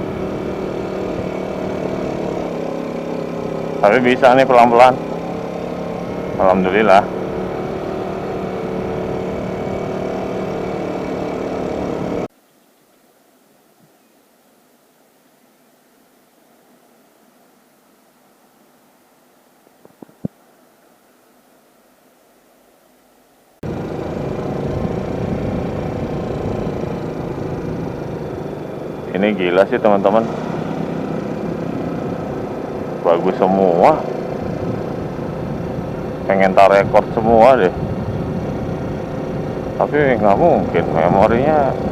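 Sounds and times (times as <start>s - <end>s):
motorcycle engine running: 0.0s - 12.3s, 23.6s - 41.9s
faint hiss: 12.3s - 23.6s
wind on microphone: 34.2s - 41.9s.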